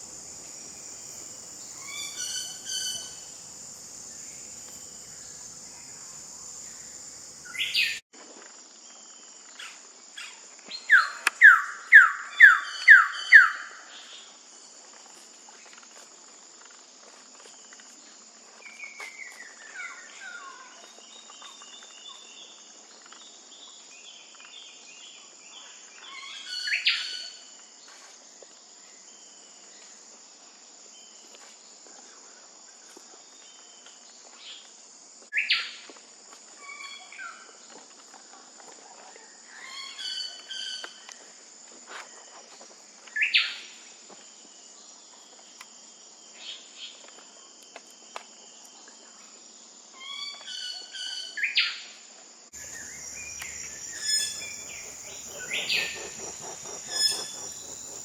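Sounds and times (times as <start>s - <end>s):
high insect drone: 0.0s - 8.0s, 52.6s - 58.0s
scattered bird calls: 0.0s - 8.0s, 52.6s - 58.0s
bird call with downward sliding notes: 1.6s - 3.5s, 4.3s - 8.0s, 52.6s - 58.0s.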